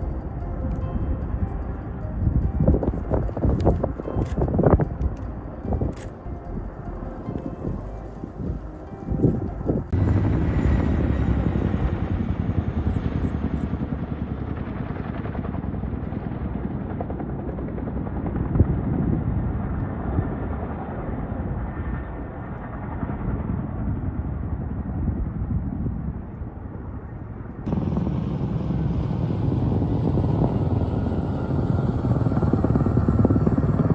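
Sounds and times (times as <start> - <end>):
helicopter rotor beating: 0.0 - 24.9, 27.7 - 33.9.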